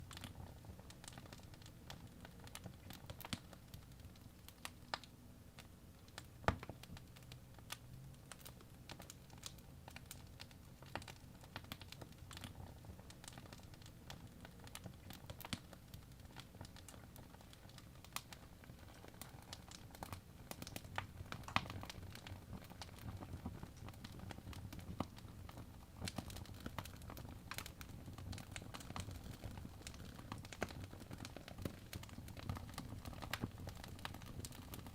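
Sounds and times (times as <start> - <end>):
logs crackling and popping: 0.0 - 34.9
low rumble of flames: 6.2 - 34.9.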